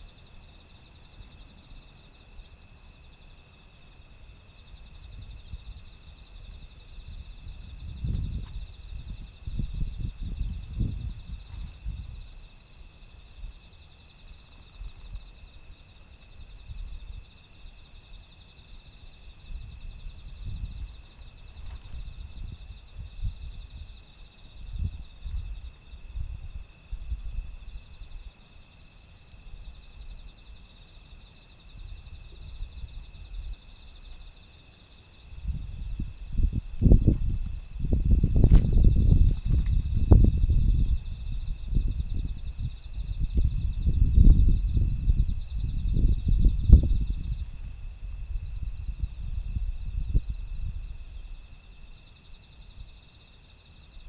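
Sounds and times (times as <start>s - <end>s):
insects trilling: 0.0s - 54.0s
wind buffeting microphone: 4.8s - 13.6s, 19.1s - 28.0s, 35.3s - 51.7s.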